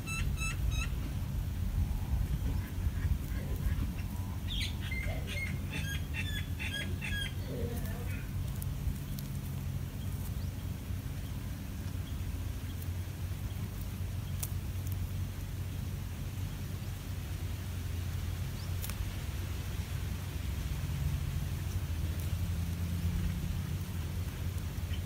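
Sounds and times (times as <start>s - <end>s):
bird sharp chirping notes: 0.0s - 1.2s, 4.0s - 14.5s
steady low rumble: 0.0s - 25.0s.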